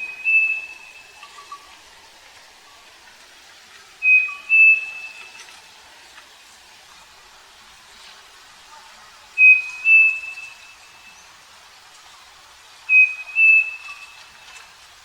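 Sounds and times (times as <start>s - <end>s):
bird whistled calls: 0.0s - 1.4s, 4.0s - 5.4s, 9.4s - 11.2s, 12.9s - 14.4s.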